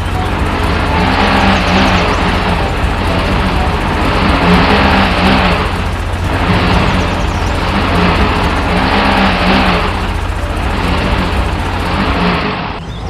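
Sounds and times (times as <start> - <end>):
engine running and revving: 0.0 - 13.0.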